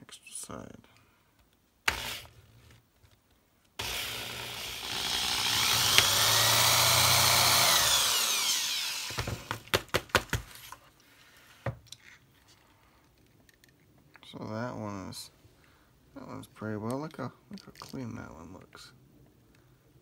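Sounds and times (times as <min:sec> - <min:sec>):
power drill whining: 0:01.9 - 0:02.4, 0:03.8 - 0:09.7.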